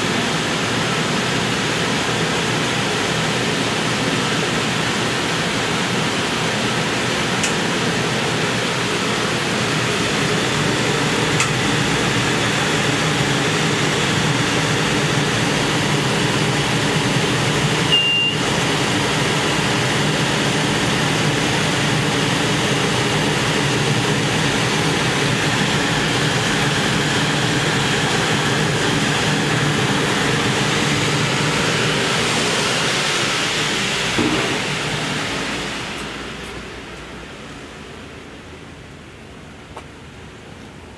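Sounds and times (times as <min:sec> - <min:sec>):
engine running steadily: 0:00.0 - 0:40.9
dense rushing noise: 0:21.8 - 0:38.3.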